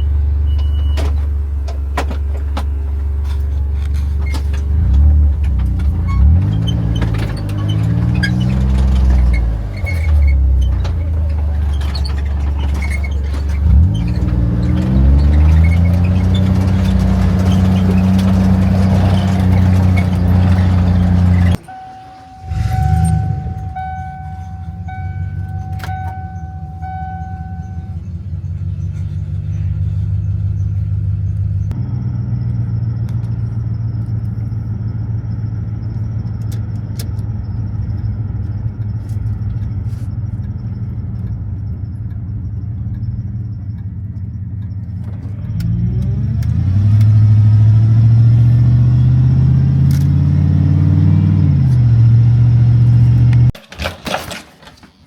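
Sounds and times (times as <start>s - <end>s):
short beeps: 0.0s - 1.1s, 21.6s - 28.0s
utility vehicle engine running: 0.0s - 55.0s.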